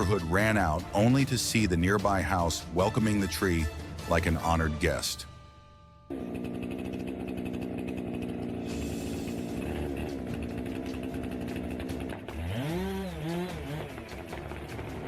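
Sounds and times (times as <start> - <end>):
chainsaw cutting a tree: 6.1 - 15.0.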